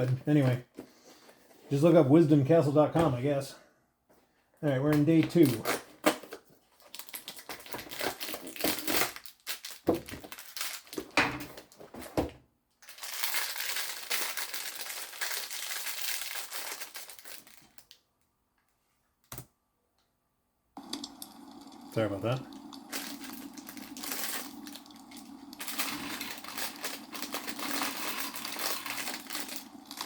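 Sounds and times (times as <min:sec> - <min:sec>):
packaging crinkling: 0:05.4 - 0:11.9, 0:12.8 - 0:18.0, 0:20.8 - 0:30.0.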